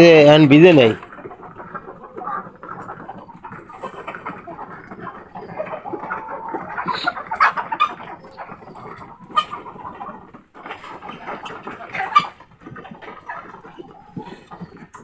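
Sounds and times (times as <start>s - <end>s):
chickens clucking and calling: 0.0s - 15.0s.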